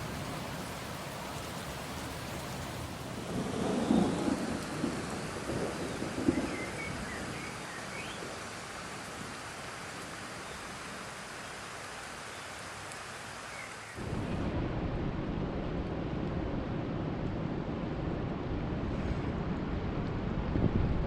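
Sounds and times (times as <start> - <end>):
thunder rumble: 0.0 - 7.6, 14.0 - 21.0
steady rain hiss: 0.0 - 21.0.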